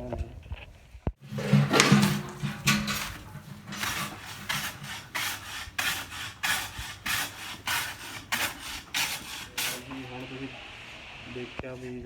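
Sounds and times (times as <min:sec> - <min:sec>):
hand rasping wood: 0:01.2 - 0:10.0.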